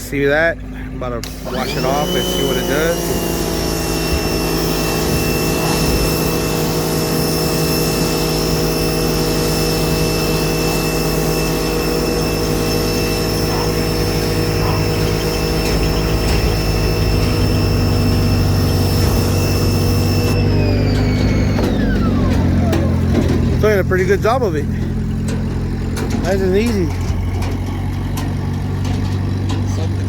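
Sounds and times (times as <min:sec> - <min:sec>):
pressure washer motor whine: 0:00.0 - 0:30.0
water jet hissing: 0:01.2 - 0:20.4.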